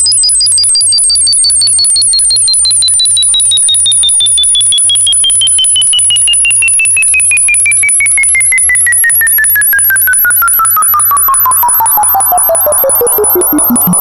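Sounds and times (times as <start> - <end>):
thin very high tone: 10.2 - 14.0
rapid pulses with gliding tone: 10.8 - 14.0.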